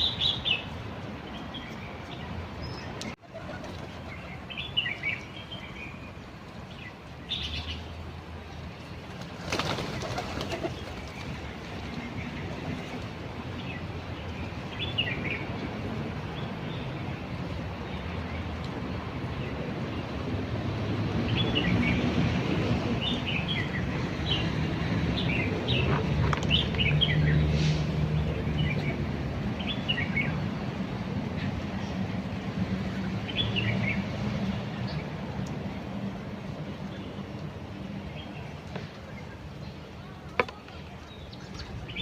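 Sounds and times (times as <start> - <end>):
birds chirping: 0.0 - 8.5, 23.0 - 27.6, 36.8 - 42.0
road traffic rumble: 0.0 - 42.0.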